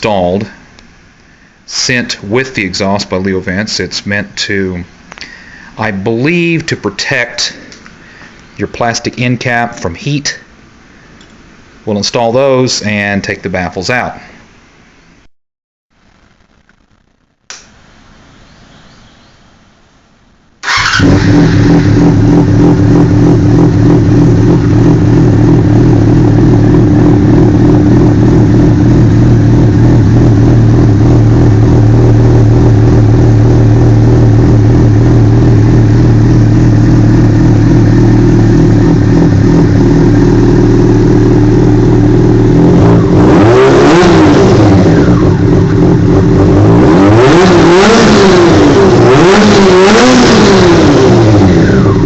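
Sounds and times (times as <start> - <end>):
click: 17.5 - 17.7
engine revving: 20.6 - 52.0
motorcycle engine idling loudly: 20.7 - 43.2.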